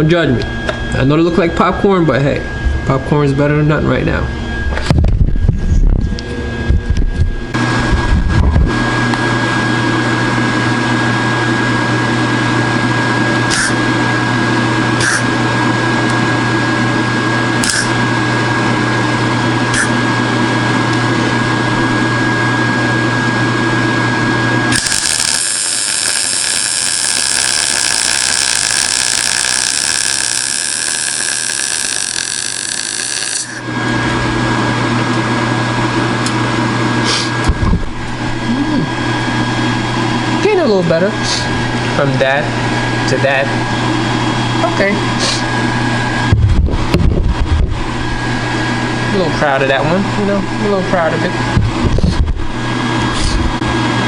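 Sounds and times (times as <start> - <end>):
mechanical hum with high tone: 0.0 - 54.0
power tool whining: 24.6 - 34.1.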